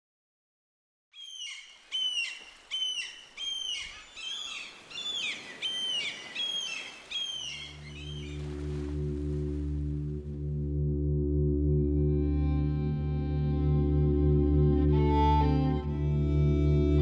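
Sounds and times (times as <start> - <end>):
faint steady hiss: 1.2 - 8.8
bird calling: 1.2 - 9.6
low musical drone: 7.8 - 17.0.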